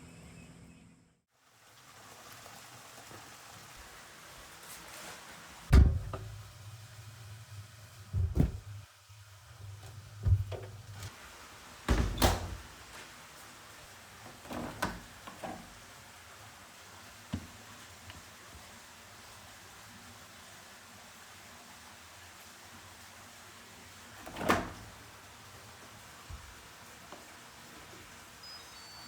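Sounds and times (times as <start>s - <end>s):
dull knocks: 8.2s - 8.8s.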